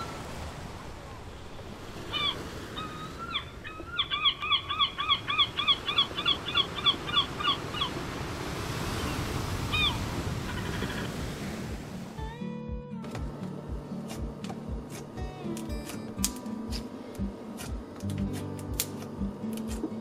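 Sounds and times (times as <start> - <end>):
surf washing: 0.0 - 12.5
gull calling: 2.0 - 8.1, 9.0 - 11.3.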